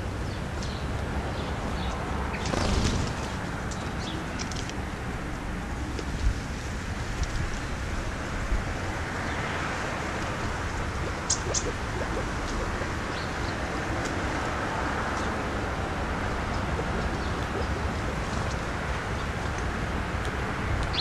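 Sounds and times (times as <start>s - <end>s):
outdoor background rumble and hiss: 0.0s - 21.0s
high bird chirps: 11.0s - 13.6s.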